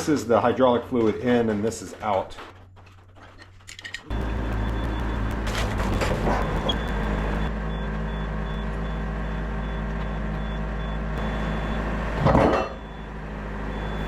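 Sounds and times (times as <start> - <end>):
diesel engine running: 4.1 - 14.0.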